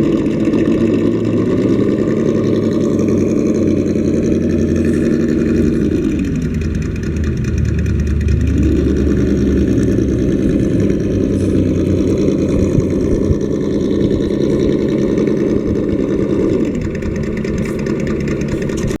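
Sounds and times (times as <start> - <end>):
simulated engine sound revving: 0.0 - 19.0.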